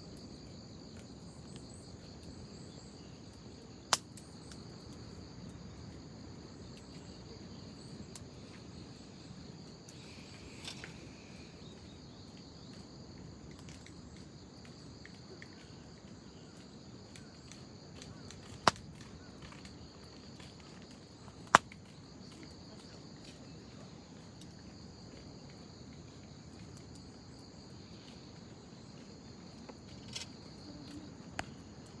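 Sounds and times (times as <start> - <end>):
wood fire crackling: 0.0 - 22.9
insects chirring: 0.0 - 32.0
fire popping: 3.3 - 5.2, 17.1 - 19.8, 21.2 - 21.9.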